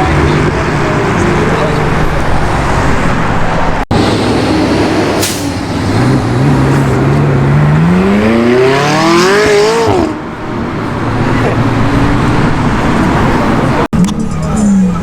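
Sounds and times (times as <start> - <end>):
background traffic: 0.0 - 15.0
car accelerating hard: 3.9 - 13.9.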